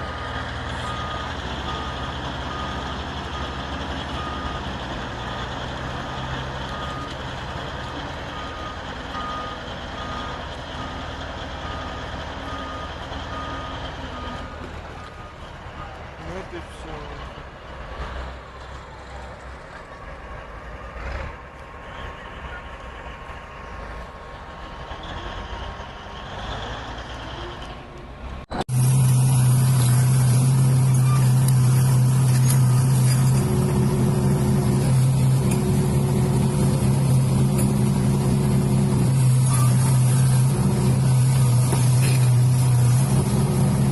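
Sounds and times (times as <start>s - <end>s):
low engine drone: 28.6s - 43.9s.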